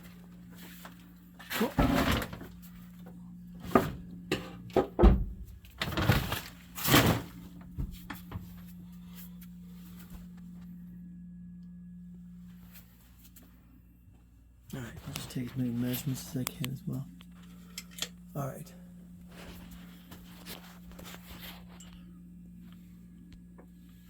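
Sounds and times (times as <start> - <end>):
things being handled and moved: 0.0 - 10.6, 14.7 - 18.2, 19.2 - 22.8
steady low hum: 0.0 - 24.0.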